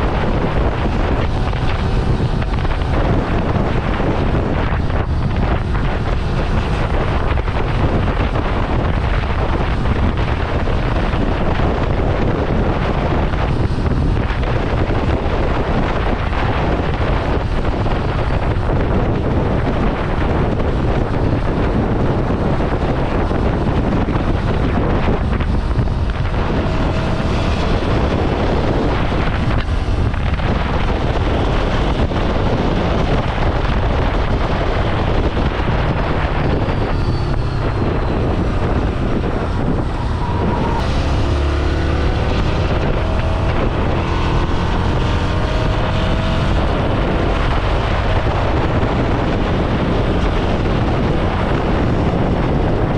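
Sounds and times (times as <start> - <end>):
motorcycle engine running: 0.0 - 52.9
wind rush on microphone: 0.0 - 52.9.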